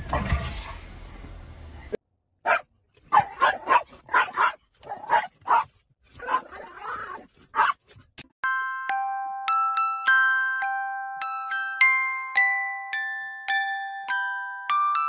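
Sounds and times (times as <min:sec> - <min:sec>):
small dog barking: 0:02.4 - 0:07.8.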